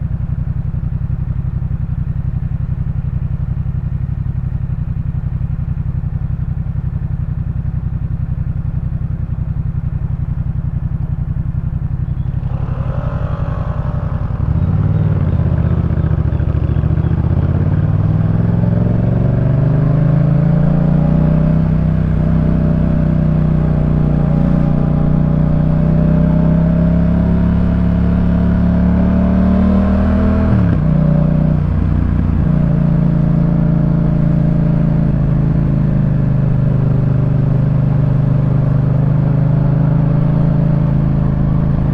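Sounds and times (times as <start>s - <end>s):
motorcycle engine revving: 9.3s - 41.9s.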